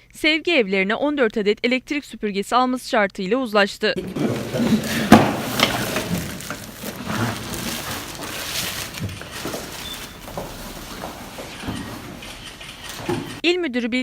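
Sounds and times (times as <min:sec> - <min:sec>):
knocks and clatter: 0:04.0 - 0:13.4.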